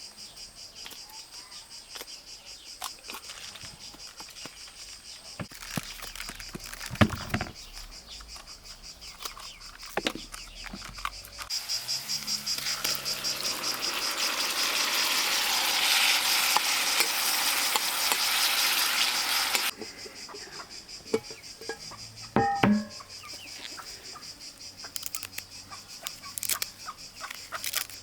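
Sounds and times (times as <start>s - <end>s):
crickets chirping: 0.0s - 28.0s
broad hiss: 11.5s - 19.7s.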